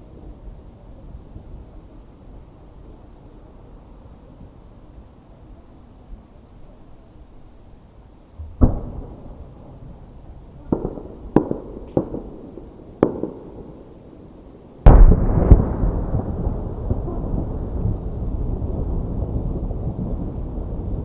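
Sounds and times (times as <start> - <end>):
steady low rumble: 8.2 - 11.9
firework shells bursting: 8.4 - 14.0.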